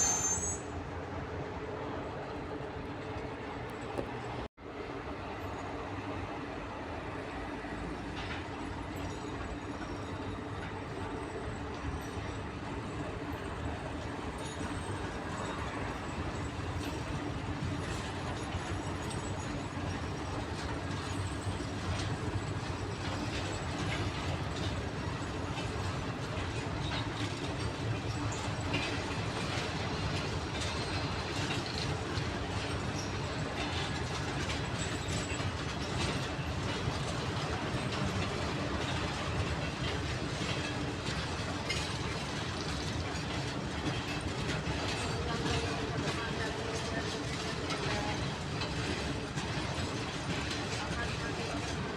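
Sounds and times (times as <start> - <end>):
short metallic clicks and squeaks: 0.0 - 0.8
diesel locomotive running: 0.0 - 51.9.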